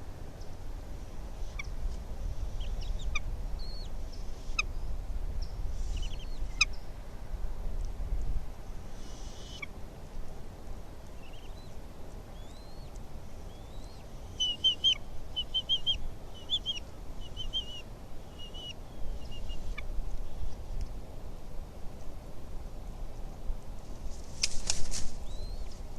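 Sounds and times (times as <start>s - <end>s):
low wind rumble: 0.0s - 25.9s
eagle chittering calls: 9.0s - 9.7s, 11.2s - 11.7s, 12.4s - 12.9s, 13.5s - 20.4s.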